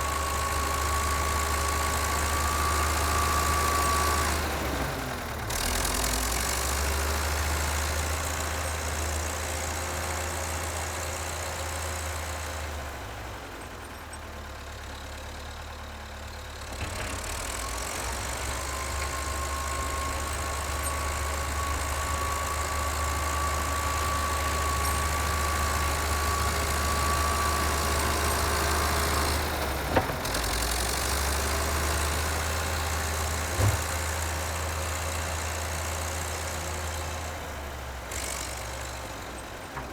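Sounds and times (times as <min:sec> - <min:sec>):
short knocks: 0:33.5 - 0:34.0.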